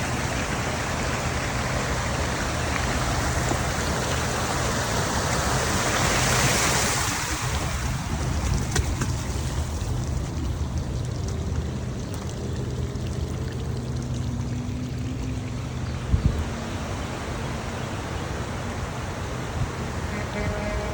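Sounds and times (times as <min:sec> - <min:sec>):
rushing splashing water: 0:00.0 - 0:20.9
traffic rumble: 0:00.0 - 0:20.9.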